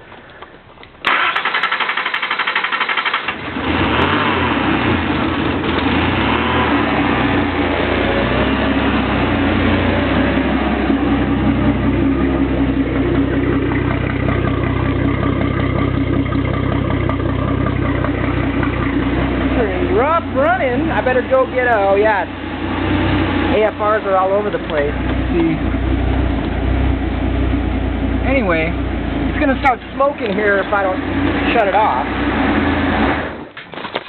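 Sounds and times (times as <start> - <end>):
car engine idling rough: 0.0 - 34.0
car engine cranking on starter: 0.1 - 8.0.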